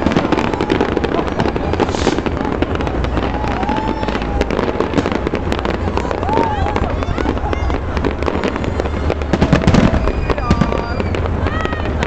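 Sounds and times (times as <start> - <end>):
fireworks crackling and banging: 0.0 - 12.0
rushing hiss: 1.7 - 2.4.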